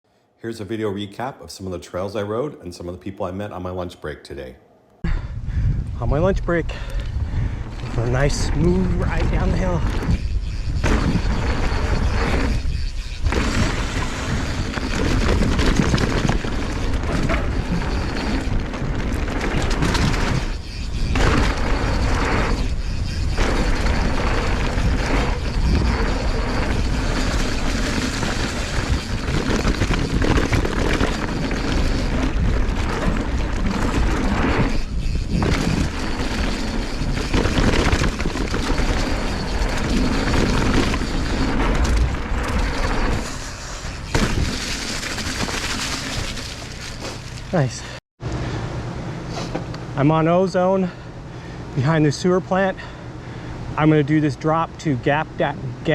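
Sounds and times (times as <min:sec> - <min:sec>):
wind buffeting microphone: 0:05.0 - 0:44.8
bike tyres rumbling and rattling: 0:05.1 - 0:48.0.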